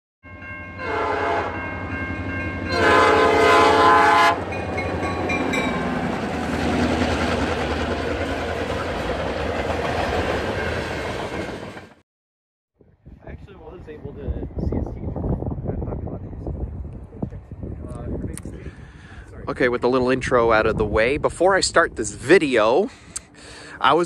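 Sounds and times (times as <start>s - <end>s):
locomotive horn blasts: 0.7s - 1.9s, 2.6s - 4.7s
train wheel noise: 4.4s - 12.0s.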